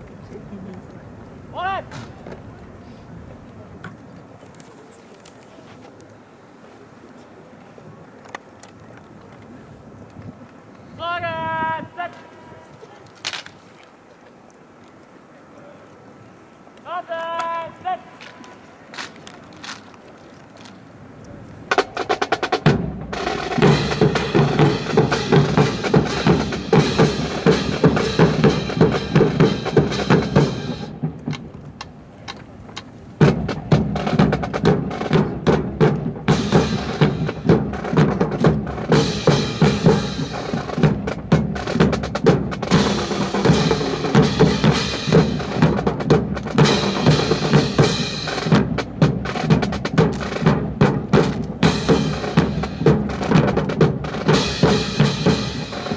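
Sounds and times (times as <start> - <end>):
marching snare and bass drums: 1.5 - 2.5, 21.7 - 55.9.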